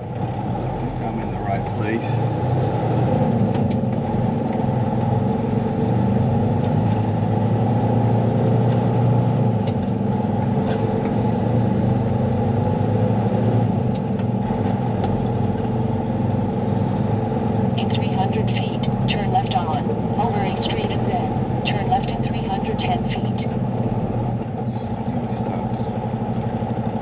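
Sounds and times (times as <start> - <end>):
truck diesel engine drone: 0.0 - 27.0.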